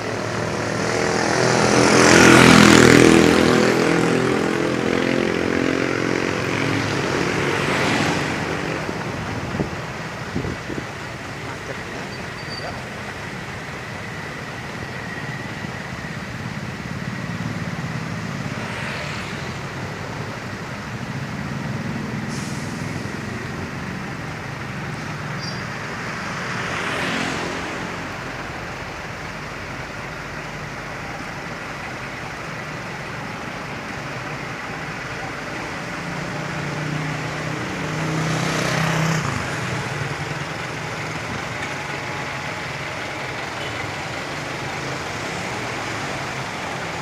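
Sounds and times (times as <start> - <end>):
rush of passing vehicles: 0.0 - 47.0
truck engine drone: 0.0 - 47.0
short sharp hiss: 22.3 - 23.1.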